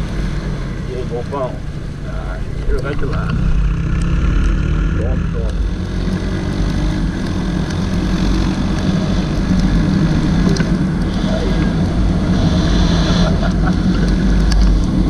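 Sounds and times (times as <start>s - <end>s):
motorcycle engine running: 0.0s - 15.0s
road noise: 0.0s - 15.0s.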